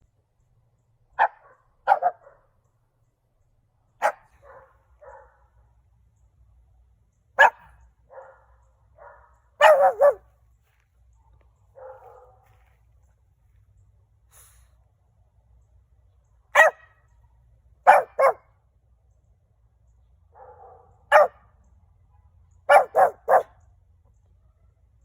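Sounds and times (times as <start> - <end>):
puppy barking: 1.2 - 2.5, 4.0 - 5.5, 7.4 - 10.3, 11.8 - 12.5, 16.6 - 16.9, 17.8 - 18.5, 20.4 - 21.4, 22.7 - 23.6.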